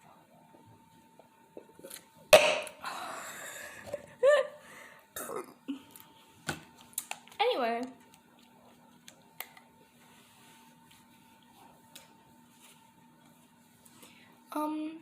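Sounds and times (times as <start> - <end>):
person coughing: 5.2 - 5.6.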